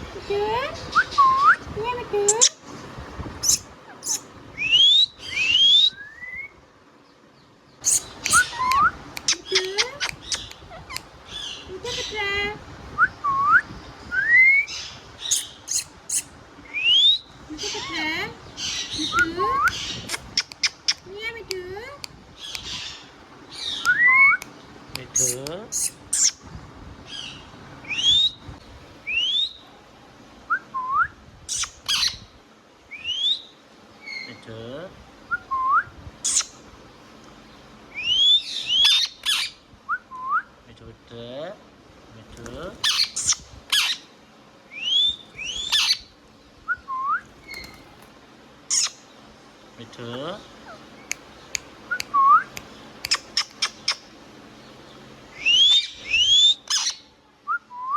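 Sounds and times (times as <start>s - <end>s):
parrot chirping and whistling: 3.4s - 6.5s, 7.8s - 11.1s, 13.0s - 17.2s, 23.7s - 24.5s, 25.1s - 26.4s, 35.3s - 36.6s, 42.8s - 44.0s, 44.8s - 46.1s, 48.7s - 49.0s, 50.7s - 54.0s, 55.4s - 57.9s
parrot whistling: 7.8s - 11.0s.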